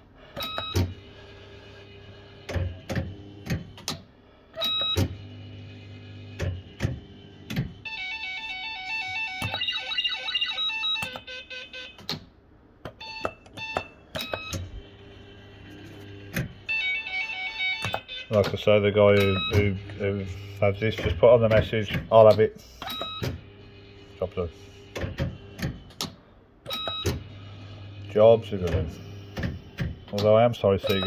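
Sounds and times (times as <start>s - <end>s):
short electronic beeps: 19.2s - 20.6s.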